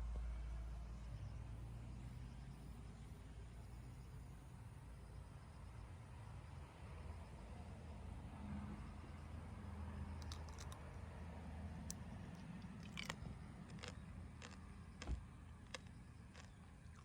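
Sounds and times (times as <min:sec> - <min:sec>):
crunchy biting and chewing: 0:10.2 - 0:10.8, 0:11.9 - 0:17.0.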